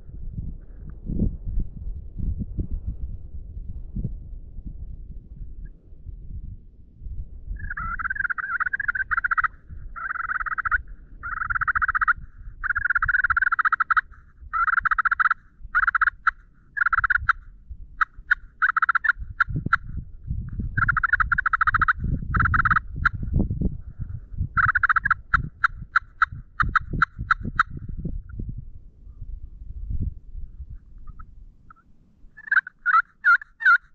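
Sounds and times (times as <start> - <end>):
turkeys gobbling: 7.6 - 17.4, 18.0 - 19.9, 20.8 - 23.2, 24.6 - 27.8, 32.4 - 33.9.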